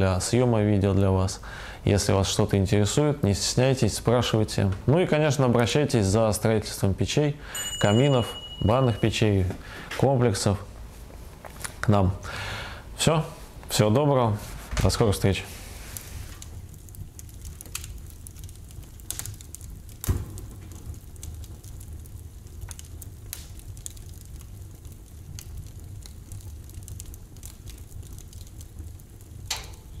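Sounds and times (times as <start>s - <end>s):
fire crackling: 0.0s - 30.0s
wood fire rumbling: 0.0s - 30.0s.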